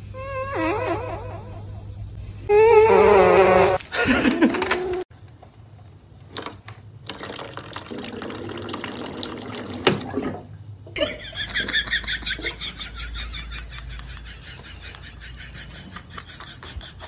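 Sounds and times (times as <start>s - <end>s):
water running from tap: 7.1s - 10.4s.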